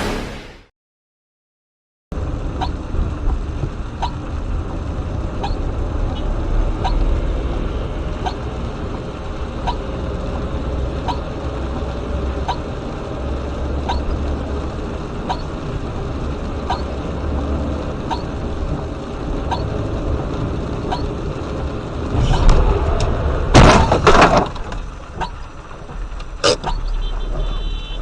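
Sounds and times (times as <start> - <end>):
car engine and road drone: 0.0 - 0.7, 2.1 - 28.0
car collision crash: 22.1 - 25.1.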